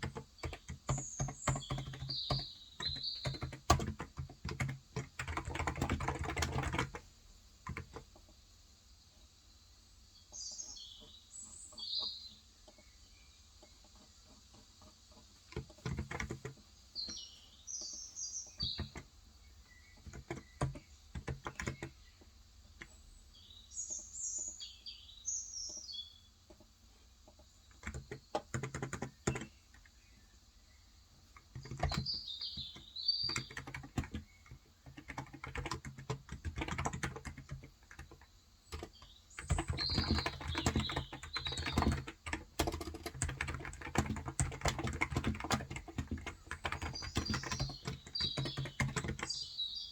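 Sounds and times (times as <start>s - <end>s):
birds chirping: 0.0s - 7.0s, 9.0s - 14.3s, 15.1s - 49.9s
typing on keyboard: 0.0s - 8.0s, 15.5s - 16.6s, 18.6s - 19.1s, 20.0s - 22.0s, 27.7s - 30.0s, 31.2s - 49.6s.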